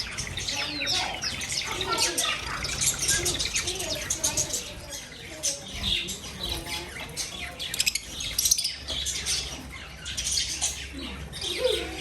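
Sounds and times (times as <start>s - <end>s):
birds chirping and squawking: 0.0s - 12.0s.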